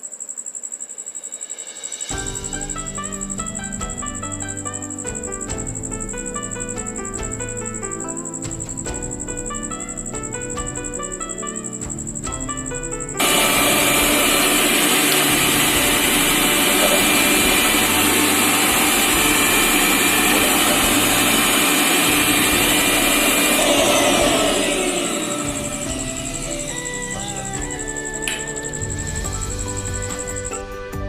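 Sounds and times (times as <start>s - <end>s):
mixer grinder motor running: 13.2s - 30.5s.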